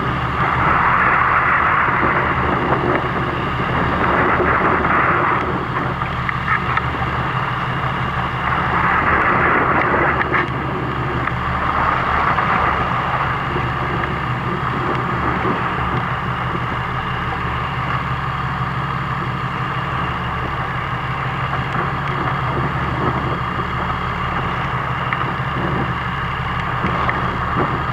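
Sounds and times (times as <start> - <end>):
boat engine running: 0.0 - 27.9
wind and water rushing: 7.1 - 27.9.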